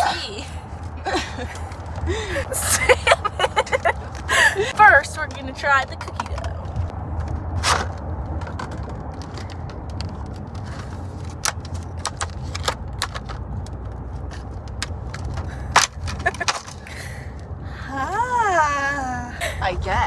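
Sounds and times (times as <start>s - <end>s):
car cabin rumble: 0.0s - 20.0s
plastic food packaging crinkling: 7.2s - 17.0s.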